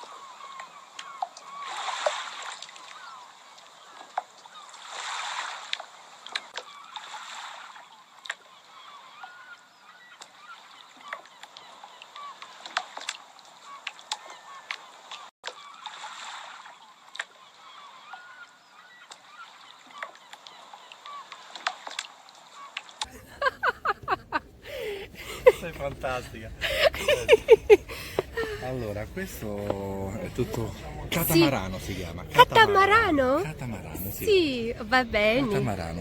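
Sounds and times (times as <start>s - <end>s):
water splashing: 1.5s - 8.5s, 19.3s - 35.6s.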